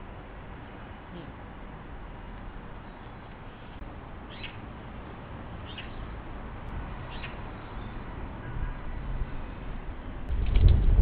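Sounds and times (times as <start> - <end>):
small bird calling: 2.8 - 4.6, 5.6 - 6.1.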